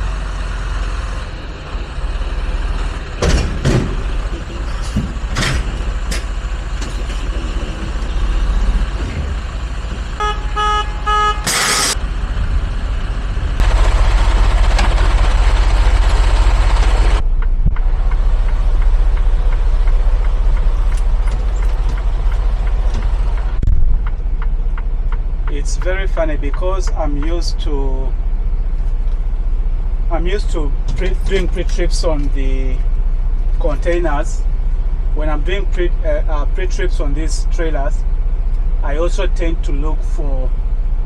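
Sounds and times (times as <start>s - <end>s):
diesel truck engine running: 0.0s - 41.0s
truck horn toots: 10.0s - 12.0s
air hiss: 11.5s - 12.0s.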